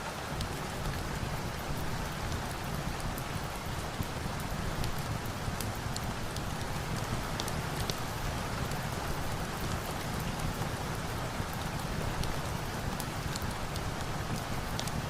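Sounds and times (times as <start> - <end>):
steady rain falling: 0.0 - 15.0
wood fire crackling: 2.7 - 10.6.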